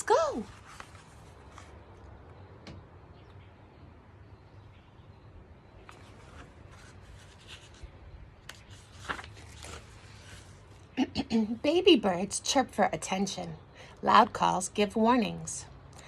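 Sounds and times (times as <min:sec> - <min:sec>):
low steady background noise: 0:00.0 - 0:16.0
faint birdsong chirps: 0:01.1 - 0:09.0.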